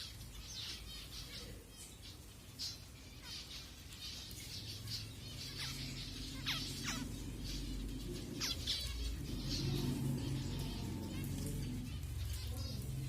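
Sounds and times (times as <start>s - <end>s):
finches chirping: 0.0s - 13.0s
low steady hum: 0.0s - 13.0s.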